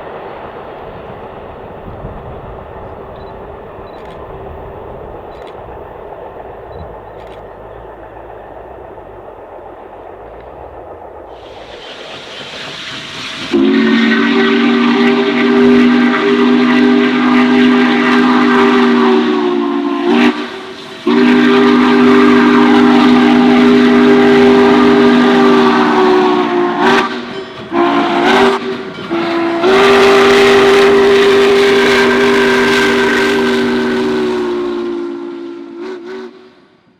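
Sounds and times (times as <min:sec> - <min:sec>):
locomotive air horn blasts: 0:13.4 - 0:36.7.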